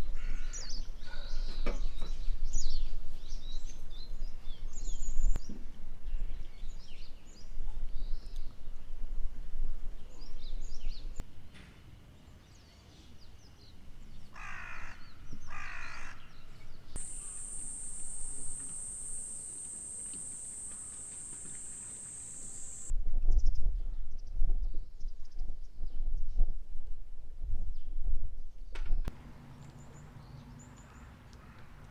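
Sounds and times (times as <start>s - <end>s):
crow cawing: 0.2s - 0.6s, 14.4s - 16.3s
small birds chirping: 13.0s - 22.9s
high-pitched drone: 17.0s - 22.9s.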